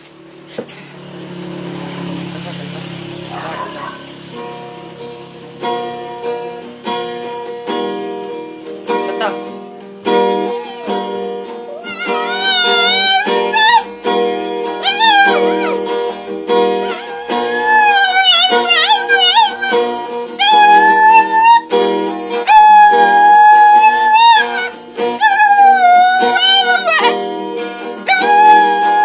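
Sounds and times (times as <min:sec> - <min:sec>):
strummed acoustic guitar: 0:00.0 - 0:29.0
dog howling: 0:03.2 - 0:04.3, 0:10.3 - 0:21.7, 0:22.4 - 0:27.3, 0:28.0 - 0:29.0.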